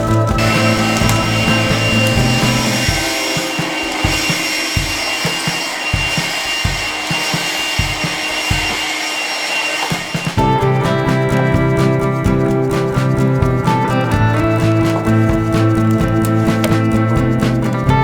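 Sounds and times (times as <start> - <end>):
hand saw cutting wood: 0.4 - 10.4.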